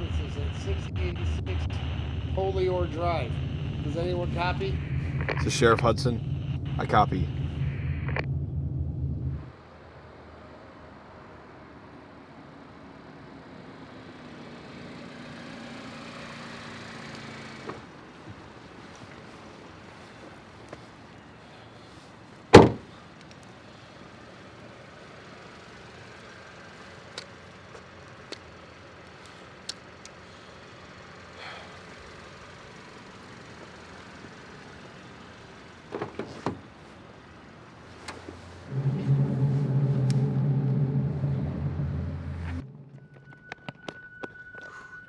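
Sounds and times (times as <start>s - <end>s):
steady pitched motor hum: 0.0s - 9.4s, 38.7s - 43.1s
car door slamming: 22.5s - 23.0s.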